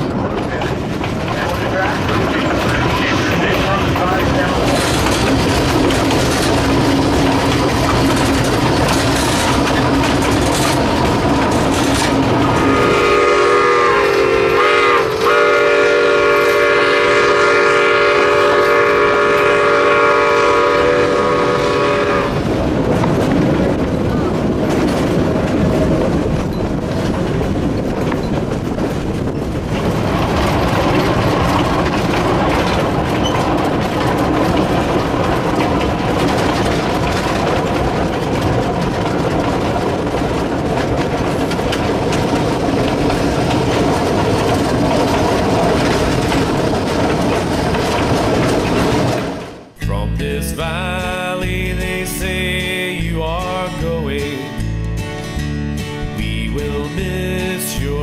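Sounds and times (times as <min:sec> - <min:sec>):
wheel clatter on rails: 0:00.0 - 0:49.8
steam train rumbling: 0:00.0 - 0:58.0
steam whistle blasts: 0:12.6 - 0:22.4.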